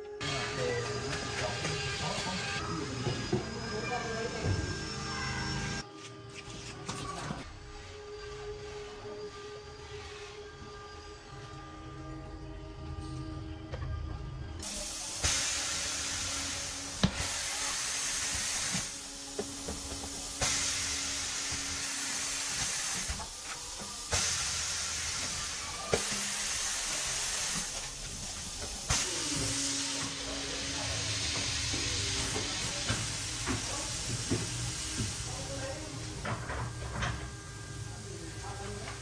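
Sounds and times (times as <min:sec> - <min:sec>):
compressed air hissing: 0:14.6 - 0:36.3.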